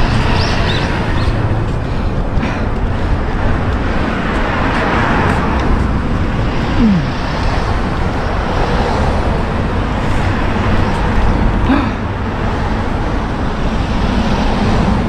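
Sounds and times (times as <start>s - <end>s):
road traffic noise: 0.0s - 15.0s
wind buffeting microphone: 0.0s - 15.0s.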